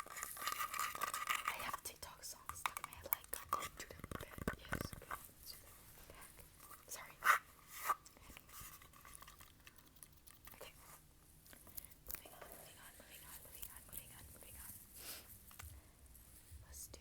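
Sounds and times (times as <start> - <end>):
crackly clicks and taps: 0.0 - 5.3, 8.4 - 10.8, 11.4 - 12.6.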